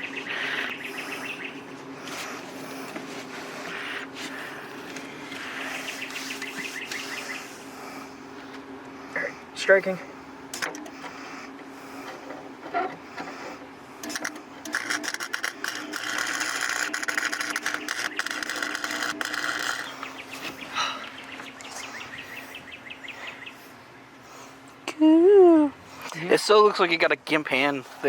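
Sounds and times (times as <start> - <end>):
welding arc crackling: 14.1 - 20.0.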